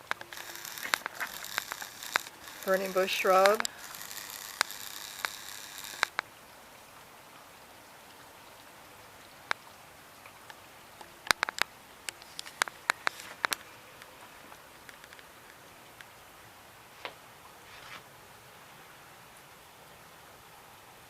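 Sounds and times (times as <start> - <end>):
loud hiss: 0.0 - 6.2
drips on hard surfaces: 0.0 - 6.3, 9.3 - 16.2
rain falling: 0.0 - 21.0.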